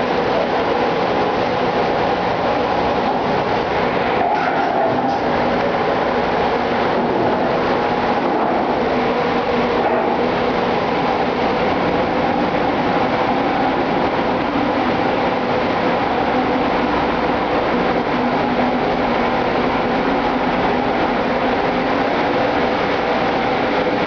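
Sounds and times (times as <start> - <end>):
diesel engines running: 0.0 - 24.0
multi-toned machinery hum: 0.0 - 24.0.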